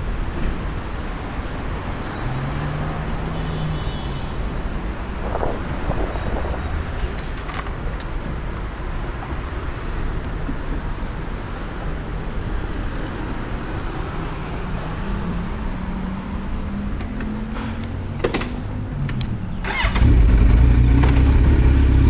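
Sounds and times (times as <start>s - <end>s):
road traffic noise: 0.0s - 22.0s
vehicle engine hum: 12.4s - 22.0s.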